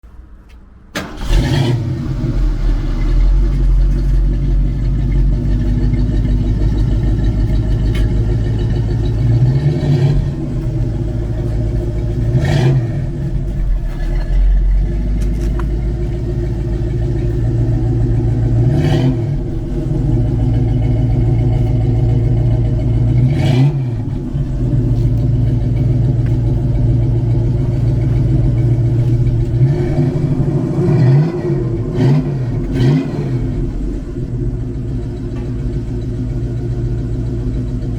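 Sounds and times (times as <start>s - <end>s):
car engine idling: 0.1s - 37.9s
engine revving: 1.0s - 34.4s.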